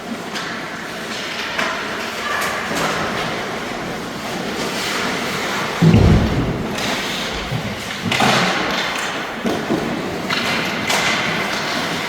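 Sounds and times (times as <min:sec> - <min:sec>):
low thud: 0:05.8 - 0:08.3
echoing background din: 0:05.8 - 0:08.4.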